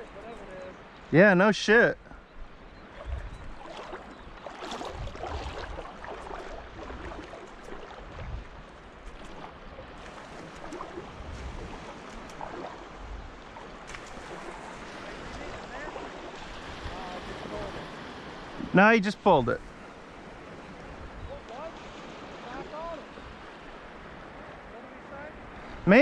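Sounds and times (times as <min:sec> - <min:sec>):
water lapping and splashing: 0:02.2 - 0:26.0
wind rumble on microphone: 0:02.4 - 0:18.8, 0:20.4 - 0:22.4.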